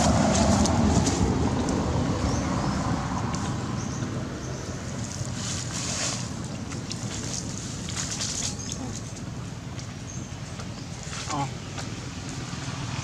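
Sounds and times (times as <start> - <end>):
wind buffeting microphone: 0.0 - 5.4.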